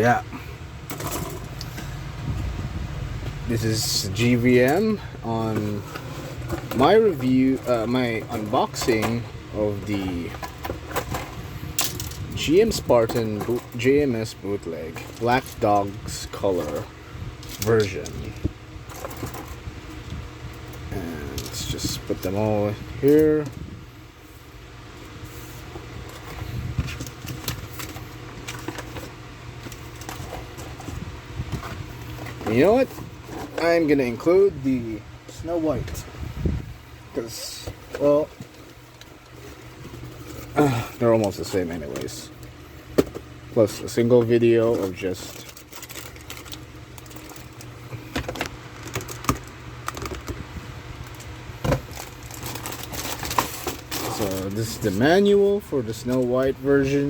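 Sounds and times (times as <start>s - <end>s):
steady low hum: 0.0s - 57.0s
box and parts being handled: 3.3s - 23.6s, 25.0s - 36.2s, 37.0s - 57.0s
plastic clicks and rustles: 44.7s - 50.4s.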